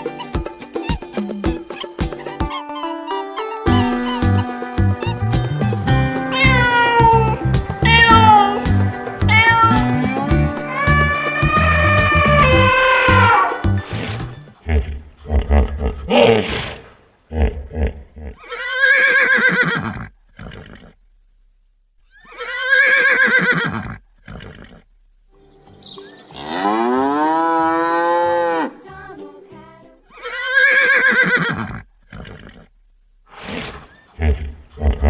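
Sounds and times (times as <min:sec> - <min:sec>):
horse whinnying: 0:06.2 - 0:13.7, 0:14.7 - 0:21.0, 0:22.1 - 0:24.9, 0:30.1 - 0:32.7, 0:33.3 - 0:35.0.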